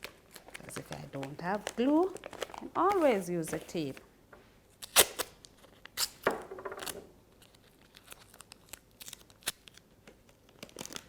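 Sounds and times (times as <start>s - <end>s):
paper crinkling: 0.0s - 4.0s, 6.8s - 11.0s
sticky tape pulled and torn: 4.8s - 9.8s.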